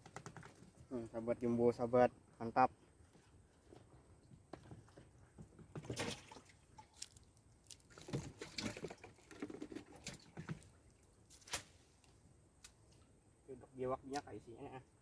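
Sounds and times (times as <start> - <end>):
water splashing and dripping: 5.8 - 11.6.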